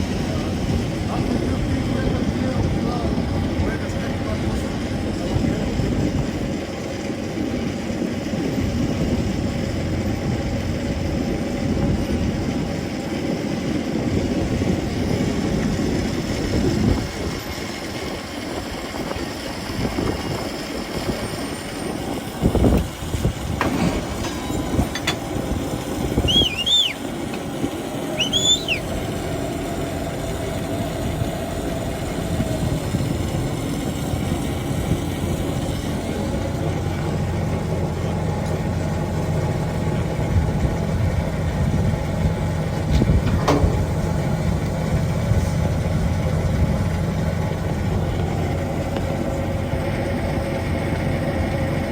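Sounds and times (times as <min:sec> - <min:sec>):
train rumbling on rails: 0:00.0 - 0:51.9
short high chirps: 0:26.2 - 0:27.0, 0:28.2 - 0:28.9.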